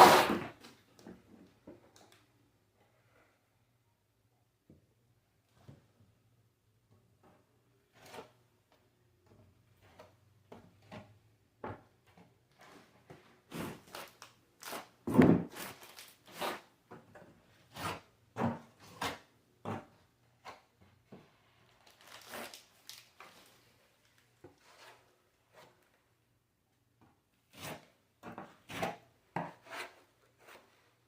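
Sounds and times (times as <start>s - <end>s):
hand tools scraping drywall: 0.0s - 0.6s, 7.9s - 8.4s, 12.5s - 16.8s, 17.6s - 20.8s, 24.5s - 25.8s, 27.5s - 31.0s.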